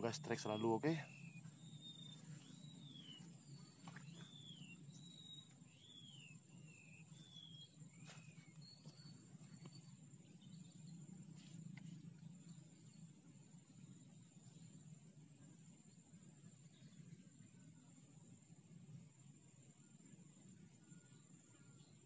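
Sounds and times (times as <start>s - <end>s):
bird whistling: 0.0s - 9.9s
low outdoor rumble: 0.0s - 22.0s
steady high-pitched whine: 0.0s - 22.0s.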